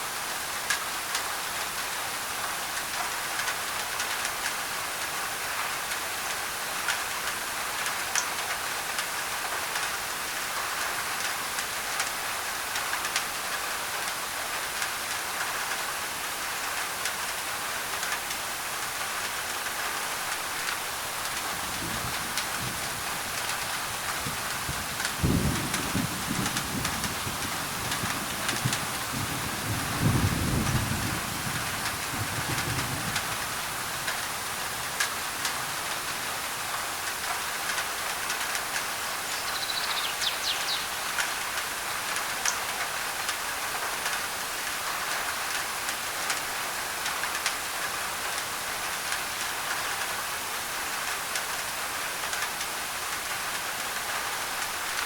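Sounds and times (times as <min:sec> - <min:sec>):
rain on a tin roof: 0:00.0 - 0:55.0
low thunder rumble: 0:24.1 - 0:34.8
bird chirping: 0:39.2 - 0:41.5.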